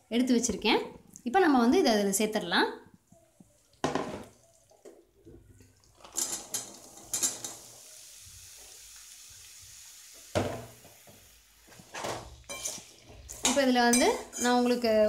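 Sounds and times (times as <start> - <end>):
colander knocking on pan: 3.8 - 4.3
oil hissing while frying: 6.1 - 15.0.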